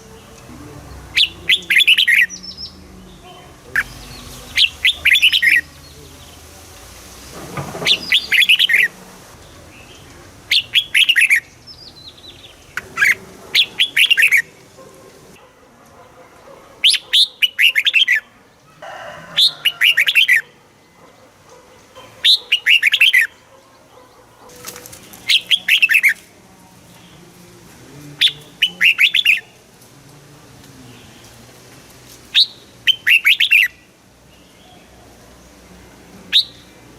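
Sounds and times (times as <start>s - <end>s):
bird singing warbled phrases: 0.0s - 7.0s, 7.8s - 15.5s, 16.1s - 18.4s, 19.4s - 27.2s, 28.1s - 29.8s, 32.3s - 36.9s.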